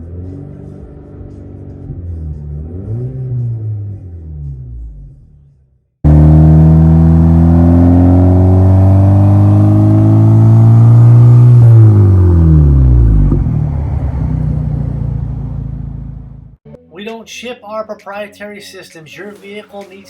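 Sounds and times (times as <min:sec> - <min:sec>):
car engine revving: 0:00.0 - 0:16.6.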